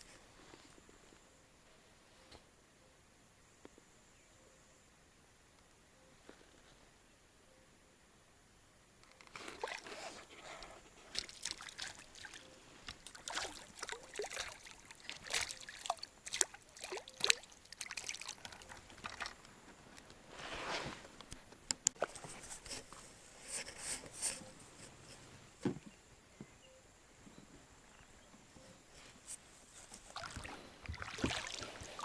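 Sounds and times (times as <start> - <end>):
water splashing and dripping: 11.2 - 19.4, 30.1 - 32.0.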